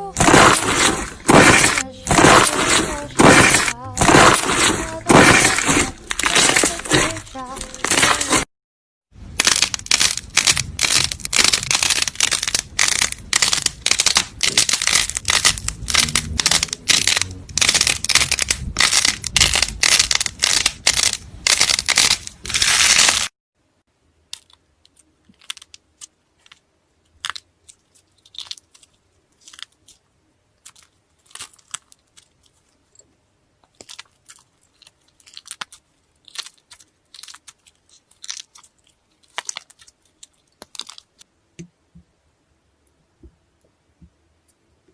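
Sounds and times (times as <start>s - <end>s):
slime crunchy crackling: 0.0s - 8.5s, 9.3s - 23.3s, 33.7s - 41.2s
slime clicks and squishes: 33.6s - 41.2s.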